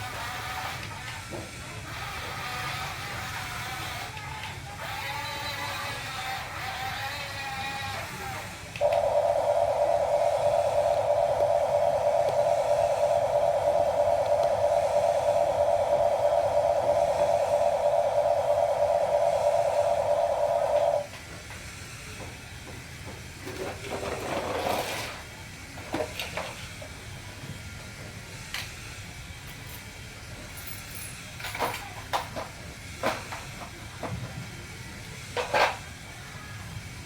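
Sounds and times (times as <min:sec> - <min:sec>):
steady hiss: 0:08.8 - 0:22.6.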